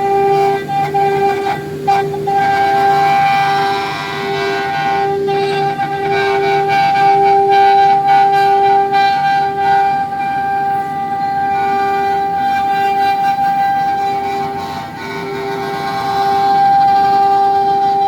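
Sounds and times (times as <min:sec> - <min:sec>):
cnc router whining: 0:00.0 - 0:18.0
lower machine tone: 0:00.0 - 0:18.0.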